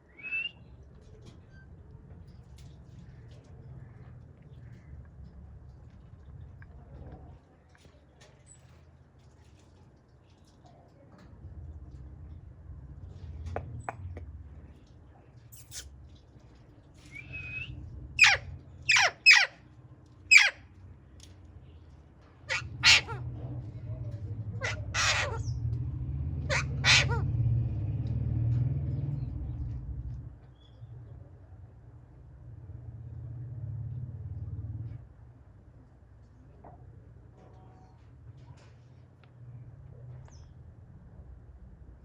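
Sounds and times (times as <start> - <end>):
parrot squawking: 18.2 - 19.5, 20.3 - 20.6, 22.5 - 23.2, 24.6 - 25.5, 26.4 - 27.3
steady low rumble: 22.6 - 35.2.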